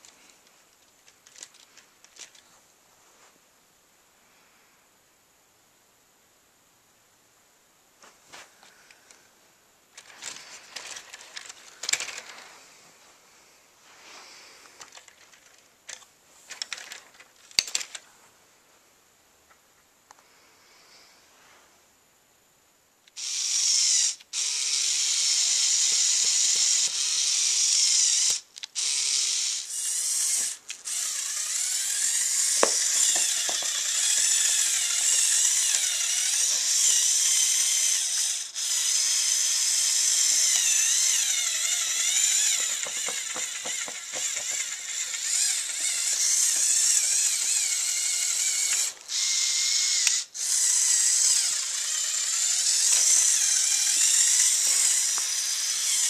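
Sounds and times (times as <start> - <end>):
plastic gears clicking: 0.0 - 2.4, 10.0 - 12.4, 14.8 - 18.0, 23.1 - 56.0
small electric motors whining: 23.1 - 56.0.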